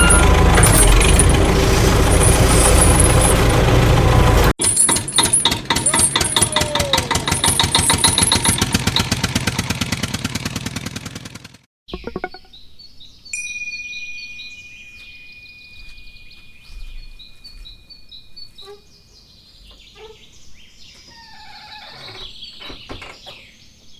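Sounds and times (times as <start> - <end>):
engine chugging: 0.0 - 12.3
steady high tone: 12.0 - 12.5.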